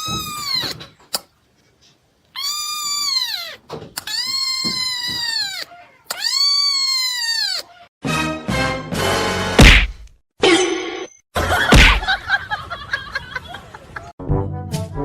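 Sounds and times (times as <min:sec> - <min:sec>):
cat yowling: 0:00.0 - 0:00.8, 0:02.4 - 0:07.9.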